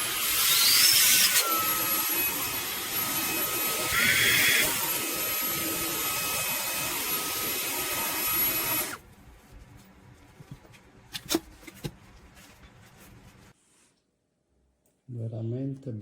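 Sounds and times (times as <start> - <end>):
handheld vacuum whine: 0.0 - 9.0.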